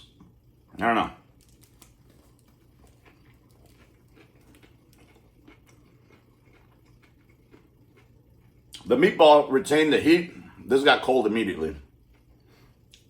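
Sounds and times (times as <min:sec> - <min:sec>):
room fan humming: 0:00.0 - 0:13.0
chewing mouth clicks and smacks: 0:01.4 - 0:08.9.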